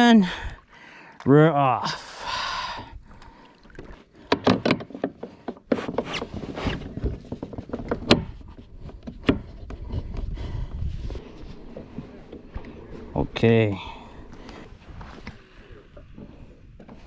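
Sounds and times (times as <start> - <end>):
water along a hull: 0.0 - 17.0
knocks and clunks: 4.2 - 10.3.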